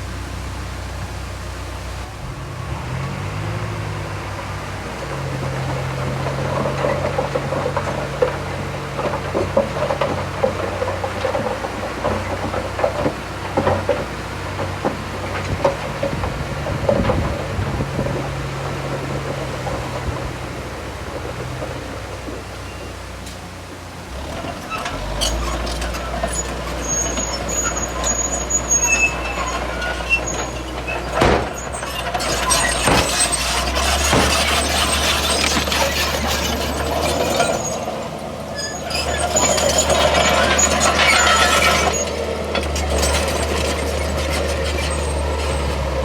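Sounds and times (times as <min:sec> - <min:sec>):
heavy diesel engine running: 0:00.0 - 0:46.0
metallic clanks and knocks: 0:24.8 - 0:38.0.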